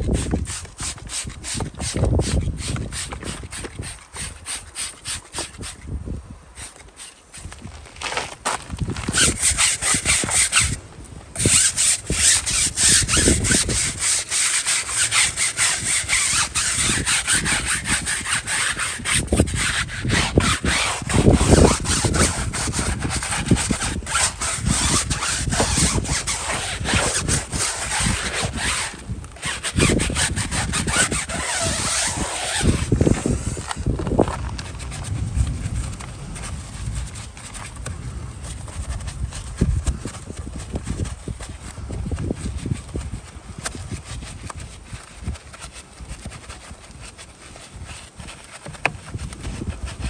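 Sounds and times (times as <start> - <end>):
scrubbing by hand: 0.0 - 5.8, 9.0 - 10.8, 11.4 - 33.6.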